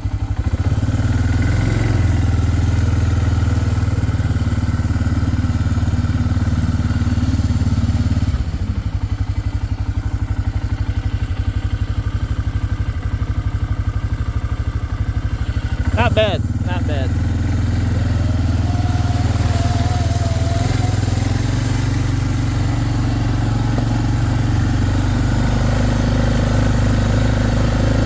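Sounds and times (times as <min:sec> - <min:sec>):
engine running: 0:14.8 - 0:28.0.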